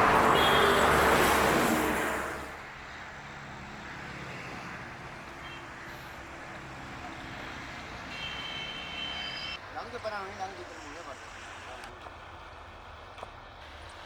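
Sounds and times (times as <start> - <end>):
engine humming: 0.0 - 2.6.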